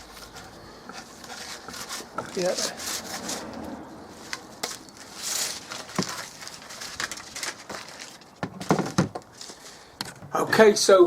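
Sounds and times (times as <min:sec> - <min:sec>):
rubbing swish: 0:01.0 - 0:06.4.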